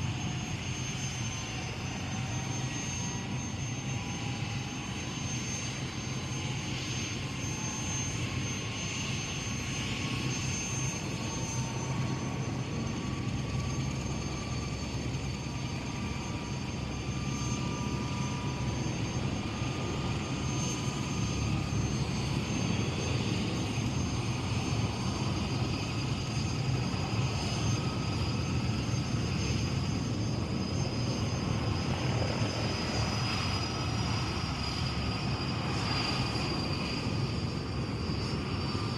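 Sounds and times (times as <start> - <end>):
helicopter engine and rotor roar: 0.0 - 38.9
high turbine whine: 0.0 - 38.9.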